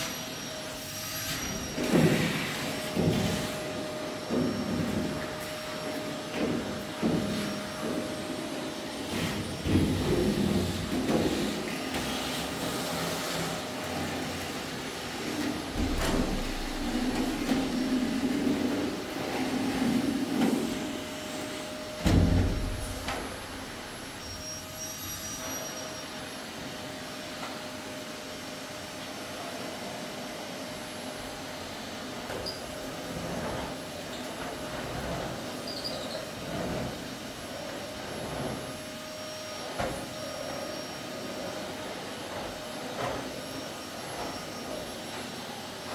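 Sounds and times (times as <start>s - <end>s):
vacuum cleaner running: 0.0s - 45.9s
loud knock: 15.7s - 18.4s.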